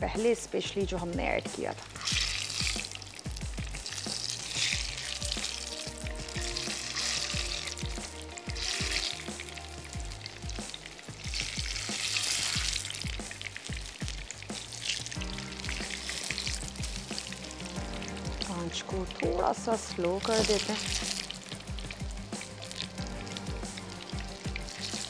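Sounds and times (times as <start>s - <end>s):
oil sizzling in a frying pan: 0.0s - 25.0s.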